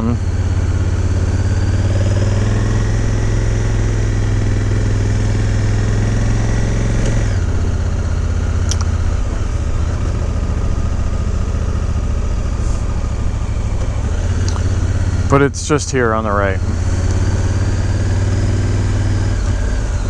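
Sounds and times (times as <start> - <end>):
motorcycle engine running: 0.0 - 20.0
sharp click: 8.6 - 8.9.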